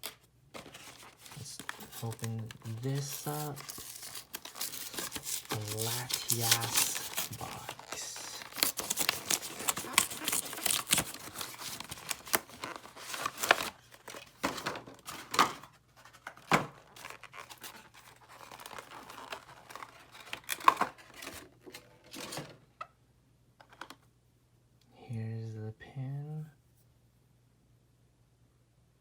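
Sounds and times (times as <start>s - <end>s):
packaging tearing and crinkling: 0.0s - 15.5s, 16.2s - 21.4s
packaging rustling: 0.0s - 22.5s.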